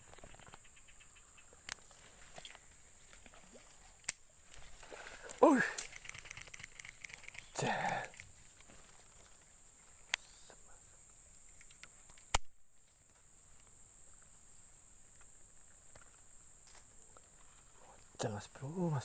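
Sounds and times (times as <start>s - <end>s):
insects chirping: 0.0s - 19.0s
sharp clicks: 5.3s - 8.3s, 11.5s - 12.6s.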